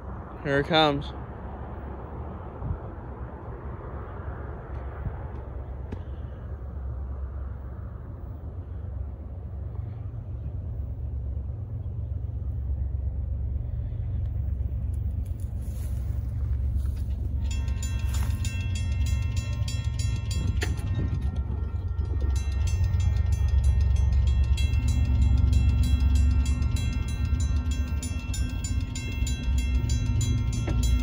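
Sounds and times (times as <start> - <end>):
freight train rumbling: 0.0 - 31.0
crossing warning bell ringing: 10.7 - 31.0.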